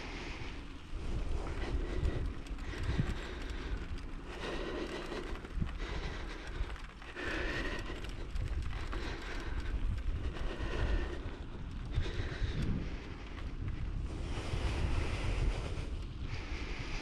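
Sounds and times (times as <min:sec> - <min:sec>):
bicycle rattling on dirt track: 0:00.0 - 0:17.0
wind buffeting microphone: 0:00.0 - 0:17.0.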